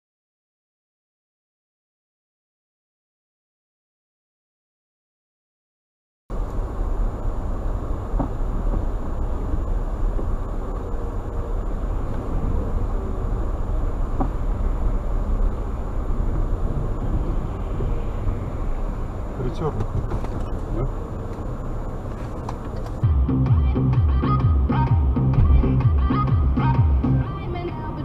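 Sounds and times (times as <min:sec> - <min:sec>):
car driving rumble: 0:06.3 - 0:28.0.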